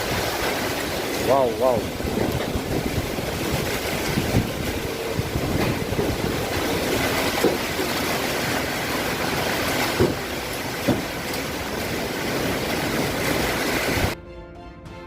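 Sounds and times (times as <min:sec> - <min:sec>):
heavy rain: 0:00.0 - 0:14.2
strong storm wind: 0:00.0 - 0:14.2
wind thumps on microphone: 0:01.8 - 0:08.1.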